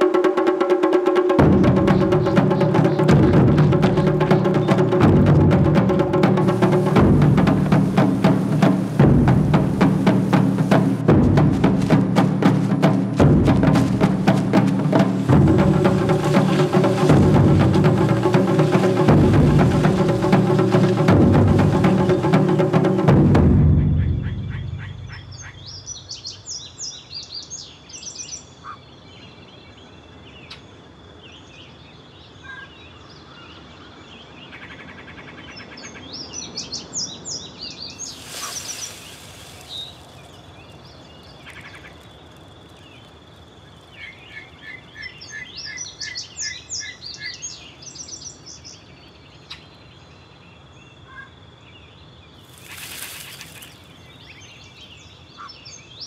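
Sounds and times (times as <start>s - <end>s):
small birds chirping and trilling: 1.4s - 5.4s, 24.0s - 56.0s
low hiss: 1.4s - 23.6s, 37.8s - 45.3s, 52.4s - 55.2s
short rush of noise: 38.0s - 41.6s, 52.4s - 54.0s.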